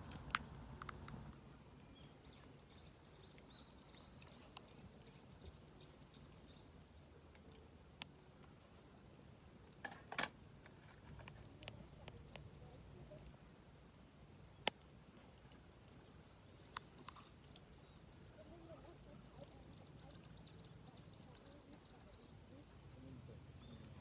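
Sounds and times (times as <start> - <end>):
sharp clicks: 0.0 - 1.3
faint bird chirps: 1.8 - 6.8, 15.4 - 24.0.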